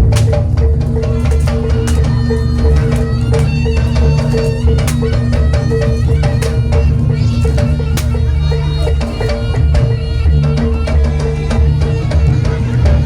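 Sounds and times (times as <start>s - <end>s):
droning tones: 0.0s - 13.0s
drums in quick rhythm: 0.0s - 13.0s.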